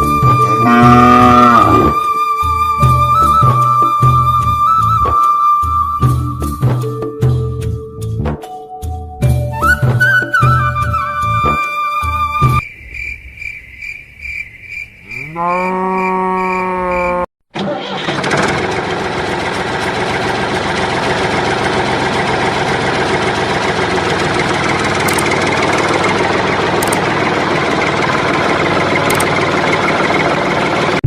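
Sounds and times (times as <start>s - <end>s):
tractor engine running: 17.5s - 31.0s.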